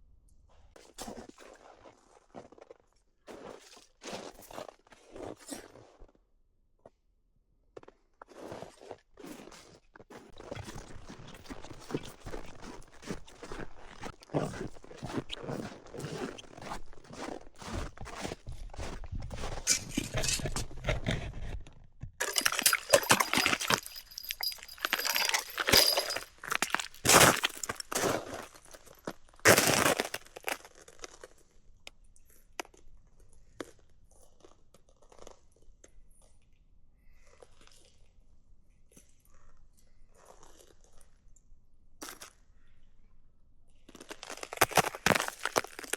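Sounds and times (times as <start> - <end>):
footsteps crunching in snow: 15.0 - 20.7, 22.2 - 28.8, 44.3 - 45.9
objects clinking and clattering: 19.4 - 21.2, 22.2 - 28.8, 44.6 - 45.9.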